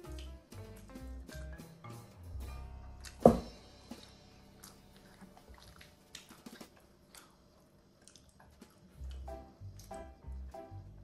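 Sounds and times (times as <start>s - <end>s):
sharp loud knock: 3.2s - 3.6s
chewing with wet mouth clicks: 4.6s - 10.0s.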